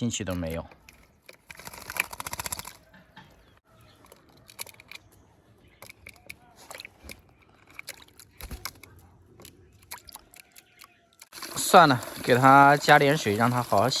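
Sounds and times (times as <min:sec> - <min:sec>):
bird clicking: 0:00.3 - 0:11.3.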